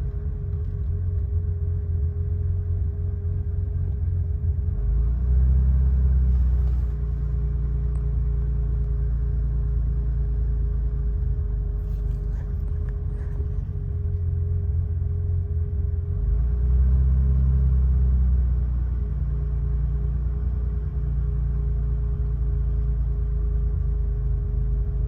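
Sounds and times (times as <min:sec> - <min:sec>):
car engine idling: 0:00.0 - 0:05.0, 0:06.1 - 0:16.4.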